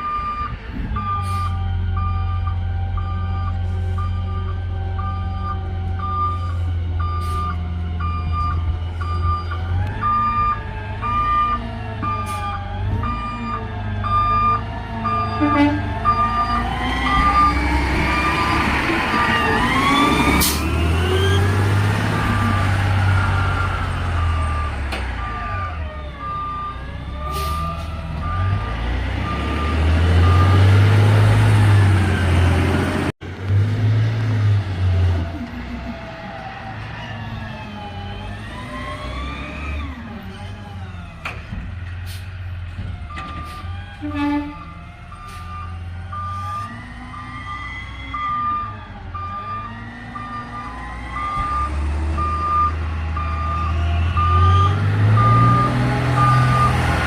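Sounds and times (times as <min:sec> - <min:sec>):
reversing alarm beeping: 0:00.0 - 0:30.8, 0:43.1 - 0:57.0.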